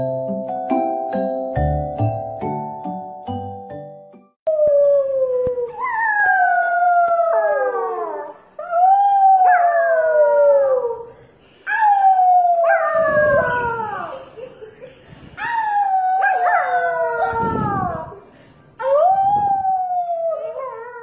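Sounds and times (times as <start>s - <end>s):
puppy howling: 11.8s - 14.2s, 15.4s - 18.2s.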